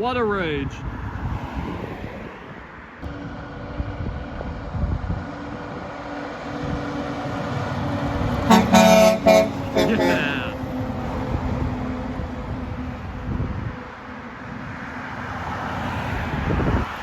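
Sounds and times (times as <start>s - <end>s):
passing traffic road noise: 0.0s - 17.0s
steady engine note: 3.0s - 14.3s
heavy truck engine rumble: 3.0s - 17.0s.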